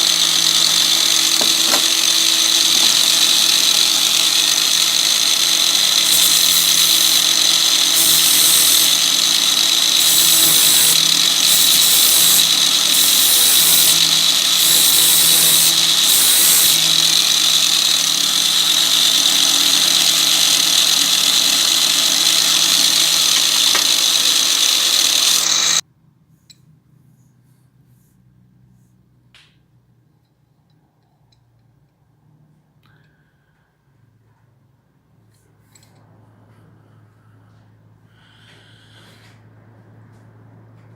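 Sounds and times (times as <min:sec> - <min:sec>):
power tool running on metal: 0:00.0 - 0:25.8.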